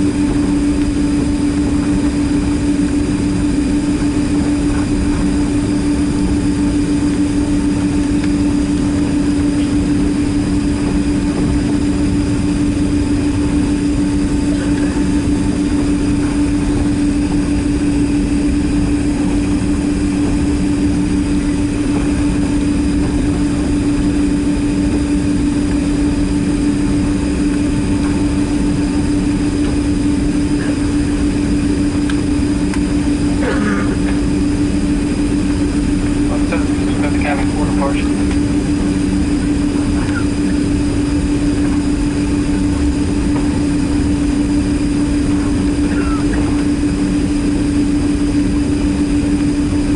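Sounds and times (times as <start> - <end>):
jet engines roaring in cabin: 0.0 - 49.9.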